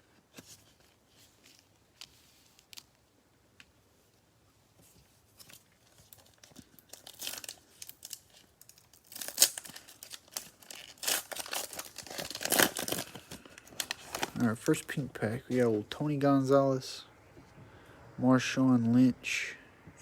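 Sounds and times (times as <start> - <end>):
plastic wrapper tearing and crinkling: 5.4 - 14.8.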